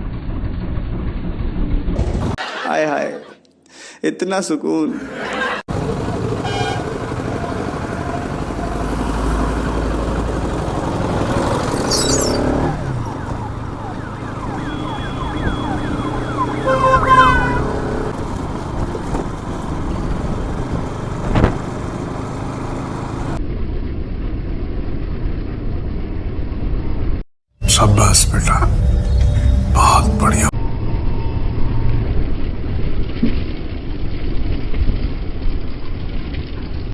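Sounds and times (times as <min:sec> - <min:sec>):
siren-like rising tones: 0:05.7 - 0:23.4
motorcycle engine and road noise: 0:05.7 - 0:27.0.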